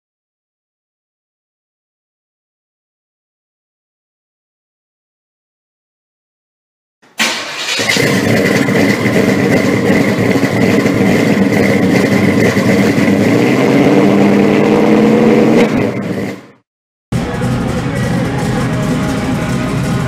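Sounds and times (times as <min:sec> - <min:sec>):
car engine running: 0:07.2 - 0:20.0.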